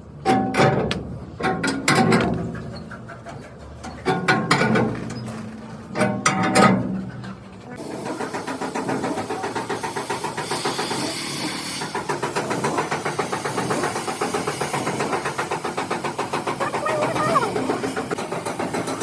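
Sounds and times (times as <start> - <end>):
engine running with rapid pulsing: 7.1 - 19.0.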